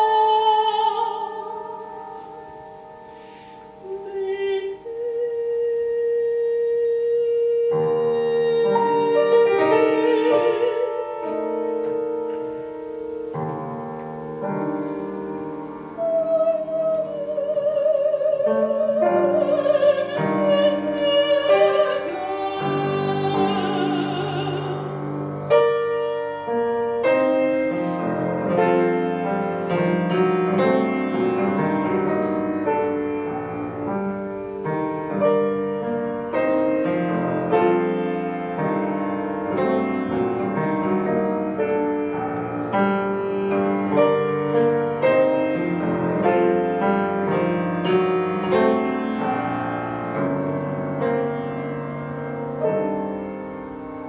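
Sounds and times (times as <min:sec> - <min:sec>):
soprano singing with vibrato: 0:00.0 - 0:12.3, 0:15.8 - 0:34.0
piano chords: 0:00.0 - 0:54.0.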